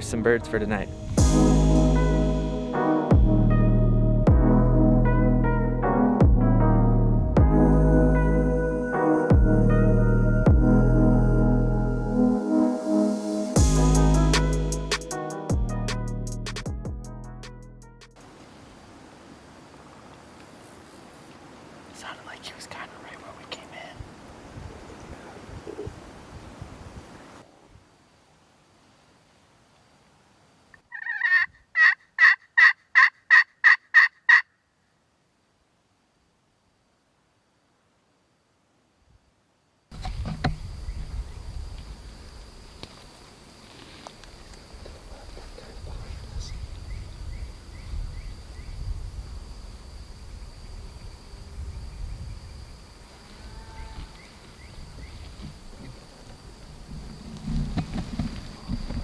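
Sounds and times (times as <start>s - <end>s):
high insect drone: 0.0s - 4.0s, 7.7s - 16.4s, 39.9s - 59.0s
low rumble: 0.0s - 12.4s
turkey yelping: 30.9s - 34.5s.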